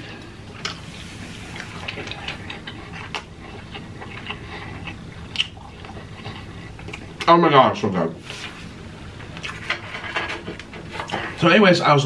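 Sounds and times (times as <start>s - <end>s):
person chewing food: 0.1s - 7.3s, 9.3s - 9.6s.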